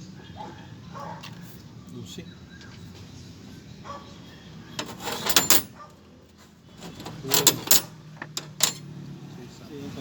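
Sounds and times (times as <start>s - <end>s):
metal tools clinking: 4.8s - 8.9s.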